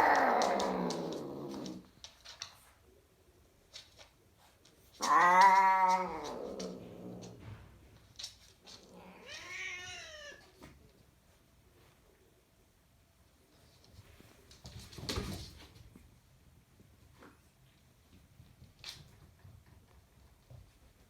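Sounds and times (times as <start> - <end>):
cats yowling: 0.0 - 1.8, 5.0 - 7.3, 8.8 - 10.5.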